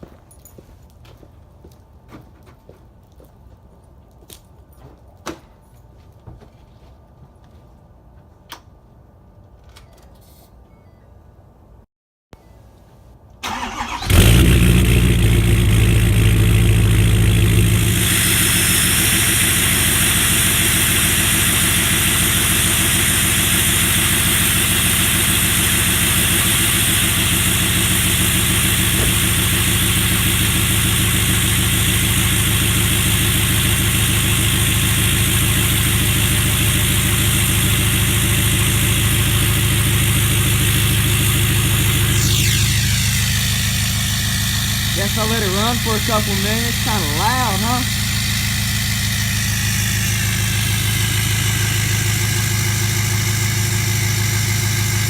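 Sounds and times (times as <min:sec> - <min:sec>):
diesel engine starting and idling: 0:13.4 - 0:55.0.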